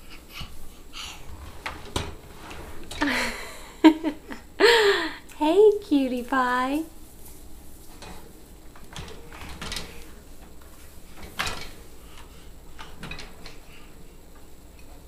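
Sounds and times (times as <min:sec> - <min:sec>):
dishwasher rack and dishes rattling: 0:01.2 - 0:04.0, 0:07.8 - 0:13.9.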